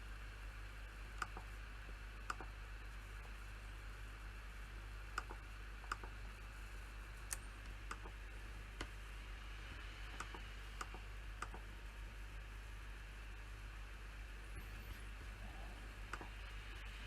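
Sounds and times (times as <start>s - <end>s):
steady low hum: 0.0s - 17.0s
computer clicks: 5.2s - 6.2s, 7.3s - 8.2s, 10.1s - 11.7s.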